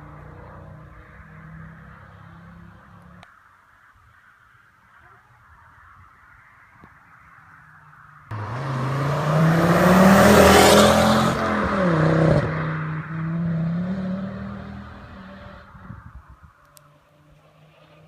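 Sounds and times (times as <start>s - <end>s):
car engine accelerating past: 8.3s - 15.7s.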